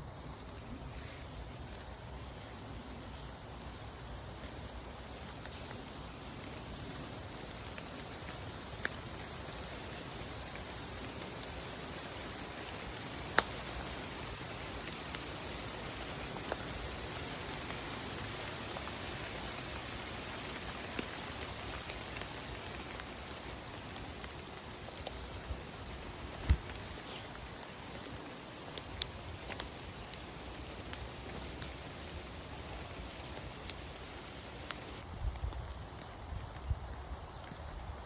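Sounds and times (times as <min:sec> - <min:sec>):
rain falling: 0:00.0 - 0:38.0.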